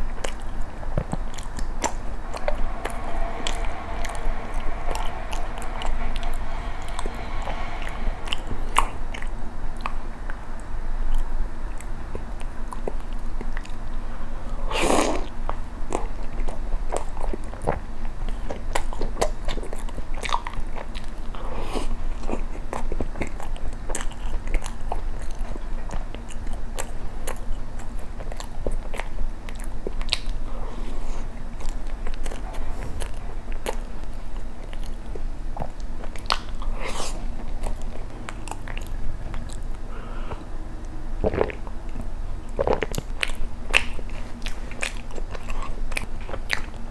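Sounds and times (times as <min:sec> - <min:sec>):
chewing bread: 0:41.2 - 0:46.9.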